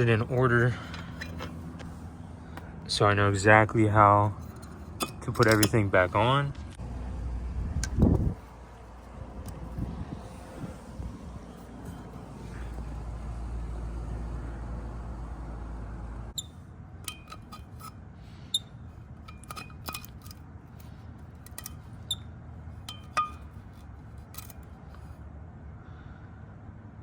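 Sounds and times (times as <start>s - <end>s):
metal parts clinking: 0.4s - 1.9s, 4.4s - 6.0s, 16.4s - 18.0s, 19.2s - 22.2s, 22.8s - 23.6s, 24.2s - 24.7s
wind rumble on microphone: 7.2s - 12.2s.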